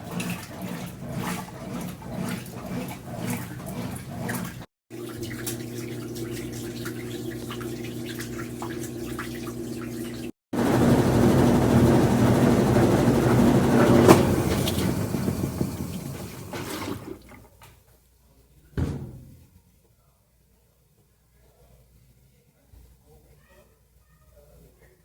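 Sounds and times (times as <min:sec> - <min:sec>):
washing machine motor hum: 0:00.0 - 0:17.5
washing machine churning: 0:00.0 - 0:17.6.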